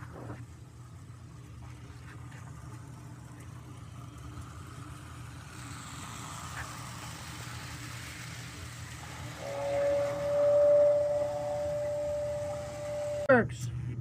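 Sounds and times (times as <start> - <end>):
toy train motor hum: 0.0 - 13.4
toy train wheels rolling: 2.6 - 13.3.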